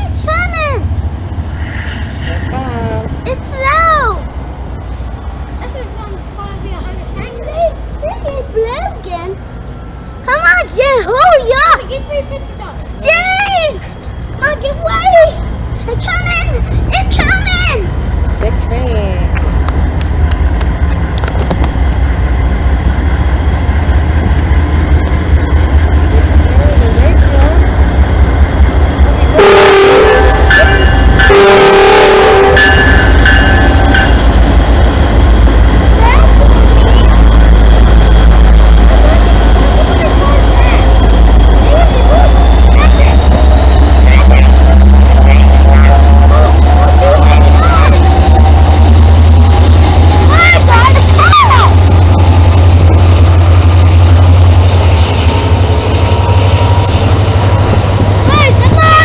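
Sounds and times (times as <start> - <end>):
passing train rumble: 0.0 - 59.0
rail noise: 0.0 - 59.0
locomotive air horn: 29.4 - 32.8.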